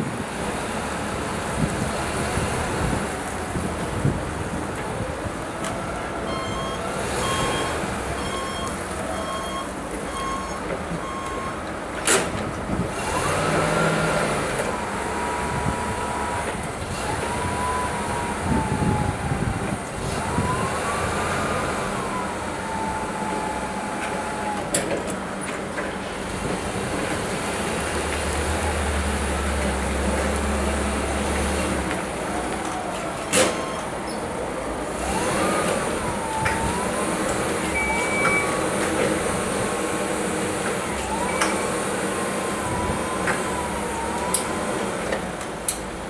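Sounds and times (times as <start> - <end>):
forklift running: 0.0 - 46.0
forklift whine: 0.0 - 46.0
short reversing beeps: 6.3 - 11.6, 37.7 - 38.7.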